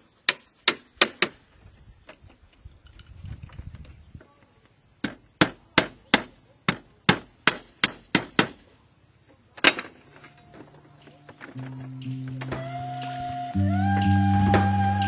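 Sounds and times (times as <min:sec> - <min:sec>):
tool striking bamboo: 0:00.2 - 0:01.4, 0:05.0 - 0:08.6
high insect drone: 0:08.6 - 0:15.0.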